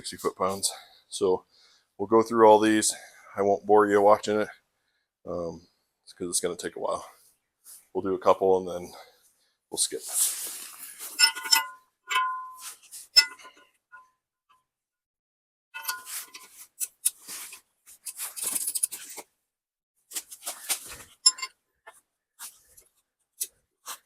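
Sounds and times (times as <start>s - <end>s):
wrench and socket clinking on bolts: 11.2s - 13.7s, 15.8s - 17.0s, 21.2s - 21.6s.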